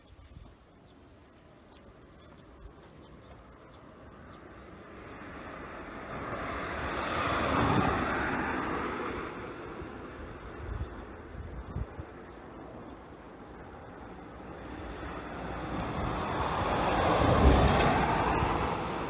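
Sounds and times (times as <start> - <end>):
passing vehicle rushing noise: 4.8 - 11.2, 14.1 - 19.0.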